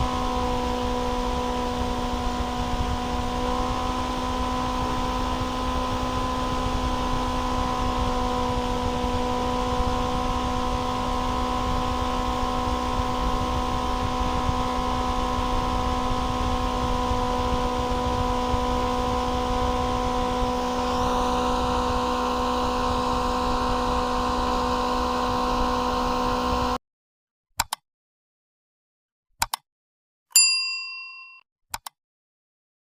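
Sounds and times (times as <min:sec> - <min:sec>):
small fan motor whining: 0:00.0 - 0:26.8
short click: 0:27.6 - 0:27.8, 0:29.4 - 0:29.6, 0:31.7 - 0:32.0.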